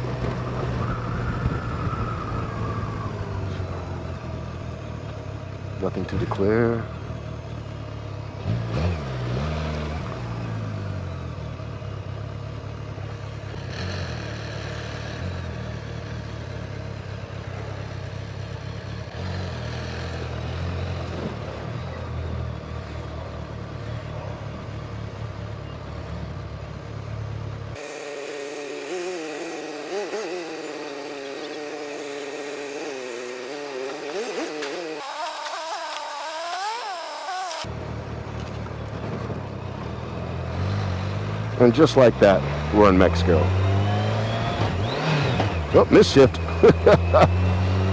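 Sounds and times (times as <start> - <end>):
motorcycle engine revving: 0.0 - 47.9
thin high engine revving: 27.8 - 37.7, 40.2 - 47.9.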